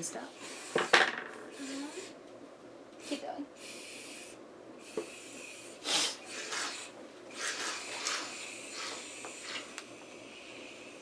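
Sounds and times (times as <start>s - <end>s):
aerosol can hissing spurts: 3.6s - 11.0s.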